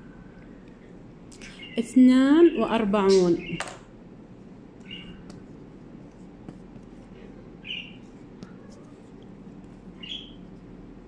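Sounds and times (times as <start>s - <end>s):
low room hum: 0.0s - 11.0s
bird chirping: 1.4s - 3.7s, 4.8s - 5.2s, 7.6s - 8.0s, 10.0s - 10.4s.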